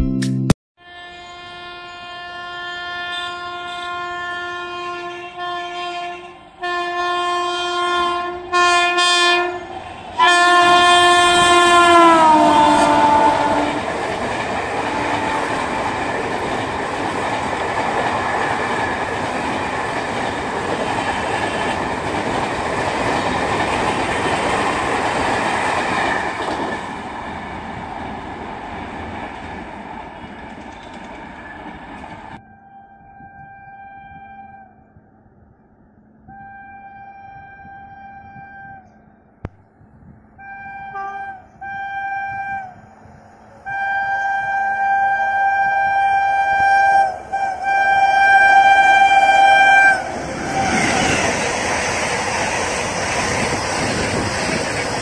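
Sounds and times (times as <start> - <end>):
train horn blasts: 0.8 - 14.1, 14.7 - 16.3, 32.4 - 34.9, 36.3 - 39.1, 40.4 - 42.9, 43.6 - 51.4
train wheels on rails: 6.4 - 32.4, 39.8 - 55.0.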